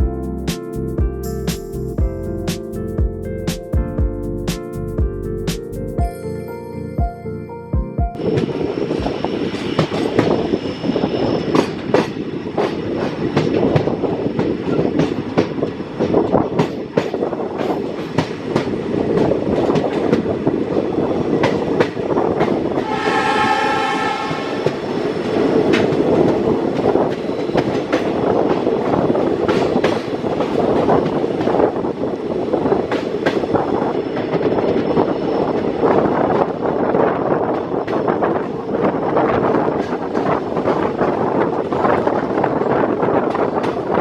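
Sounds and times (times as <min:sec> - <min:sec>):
train wheels clattering on rails: 0:08.4 - 0:44.0
train horn: 0:22.8 - 0:24.8.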